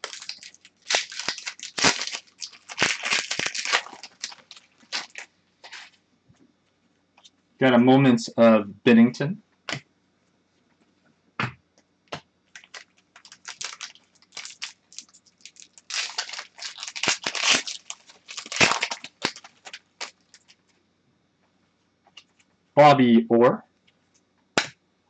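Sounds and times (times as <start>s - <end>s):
packaging crinkling and rustling: 0.0s - 6.0s, 12.5s - 20.8s.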